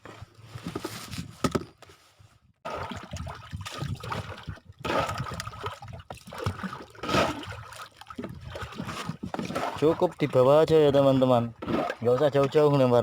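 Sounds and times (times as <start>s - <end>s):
water splashing and trickling: 2.6s - 13.0s.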